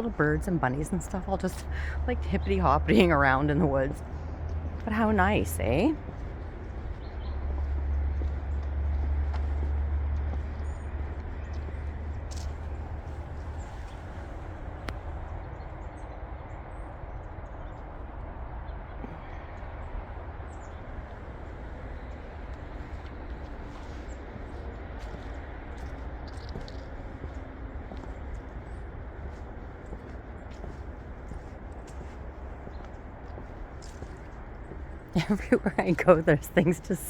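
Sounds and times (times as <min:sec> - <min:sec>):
outdoor background rumble: 0:00.0 - 0:37.0
wind buffeting microphone: 0:00.0 - 0:37.0
footsteps on mulch: 0:04.0 - 0:14.6, 0:21.0 - 0:35.6.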